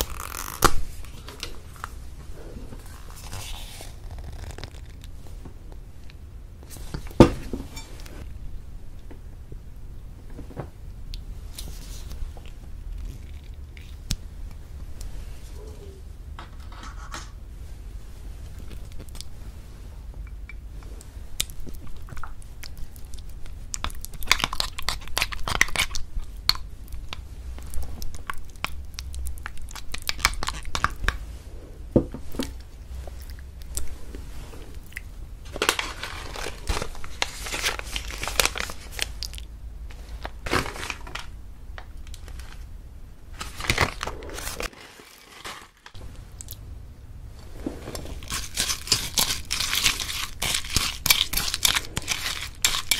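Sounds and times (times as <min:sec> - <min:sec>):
crinkling and tearing: 0:00.0 - 0:01.9, 0:02.8 - 0:05.2, 0:35.5 - 0:42.7, 0:43.4 - 0:46.6, 0:47.9 - 0:52.9.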